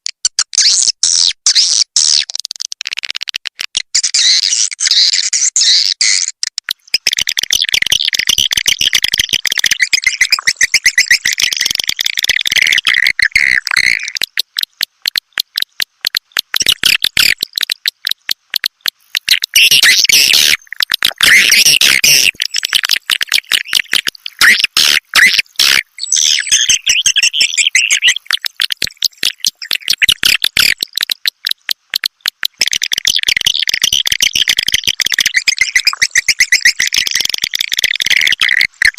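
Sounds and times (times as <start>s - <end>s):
fast dry clicking: 2.1s - 4.1s, 6.4s - 26.0s, 26.6s - 38.9s
high twittering bird chirps: 6.9s - 14.2s, 19.1s - 30.8s, 32.8s - 38.9s.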